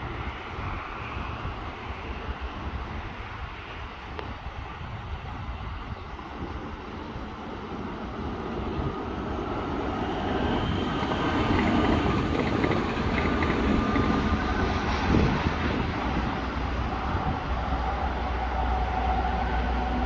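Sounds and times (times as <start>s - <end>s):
train wheels rolling on rails: 5.3s - 20.0s.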